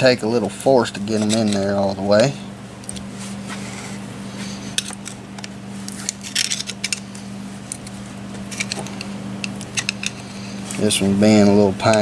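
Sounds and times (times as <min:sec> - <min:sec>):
steady low hum: 0:00.0 - 0:12.0
metal parts clicking and clinking: 0:04.8 - 0:07.1, 0:08.5 - 0:10.9.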